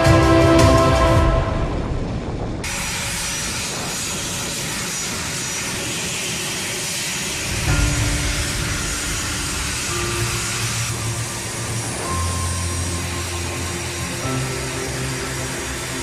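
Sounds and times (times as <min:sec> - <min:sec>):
music: 0:00.0 - 0:02.1, 0:07.5 - 0:16.0
jet engines rushing hiss: 0:00.0 - 0:16.0.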